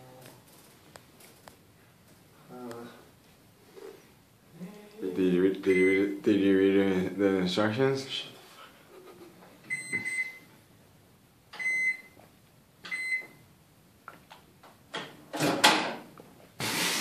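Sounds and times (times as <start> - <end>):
microwave button beeps: 11.6 - 12.2, 12.9 - 13.4.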